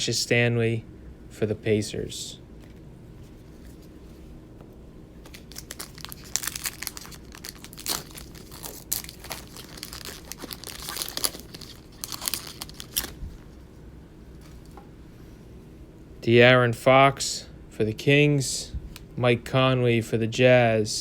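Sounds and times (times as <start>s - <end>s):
card pack wrapper tearing: 5.2s - 13.2s.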